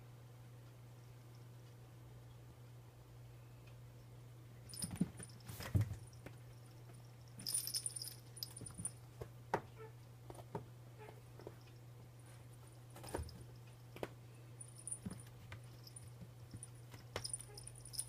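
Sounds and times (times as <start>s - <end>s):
steady low hum: 0.0s - 18.0s
faint metallic jingle: 4.7s - 9.0s, 12.7s - 18.0s.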